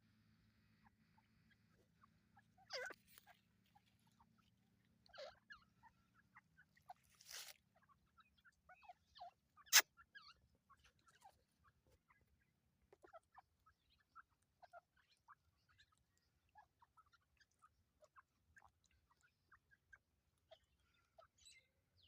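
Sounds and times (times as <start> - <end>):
birds chirping and squeaking: 1.5 - 12.2, 20.5 - 22.0.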